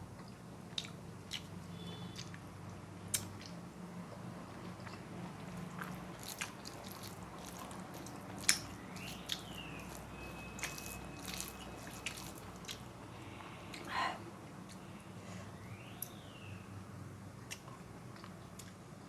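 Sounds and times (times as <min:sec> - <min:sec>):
mouth clicks and smacks: 0:03.1 - 0:03.6
person chewing: 0:04.5 - 0:13.9.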